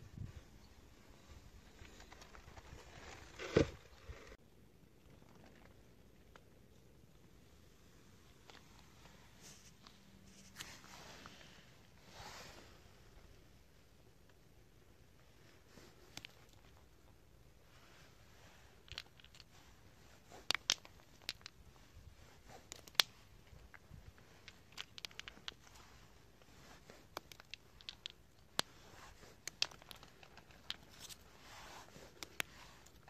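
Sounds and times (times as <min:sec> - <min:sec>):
dry wood crackling and snapping: 0:22.5 - 0:25.8, 0:26.5 - 0:31.3.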